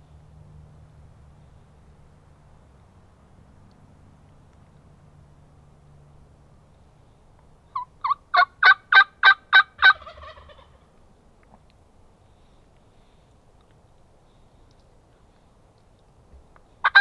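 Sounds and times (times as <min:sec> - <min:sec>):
turkey gobbling: 0:07.7 - 0:10.8.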